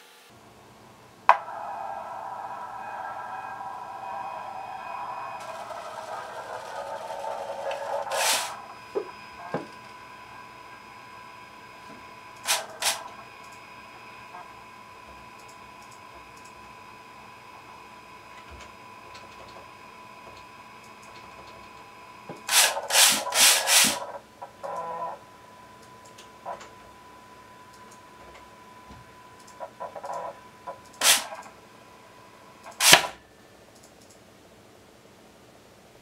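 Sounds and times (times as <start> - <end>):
faint high servo whine: 0.0 - 33.8
servo carriage rushing along rail: 1.3 - 25.1.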